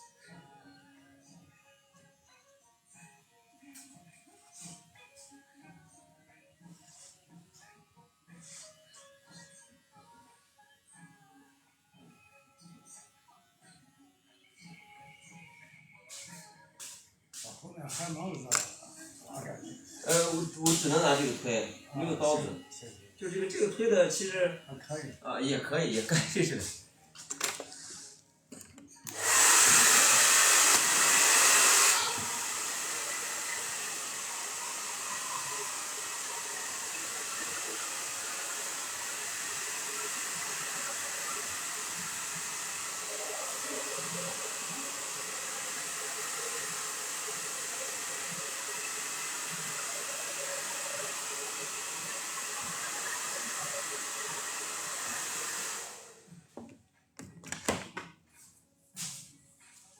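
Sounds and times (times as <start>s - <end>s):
hair dryer blowing: 20.1s - 22.4s, 29.1s - 56.3s.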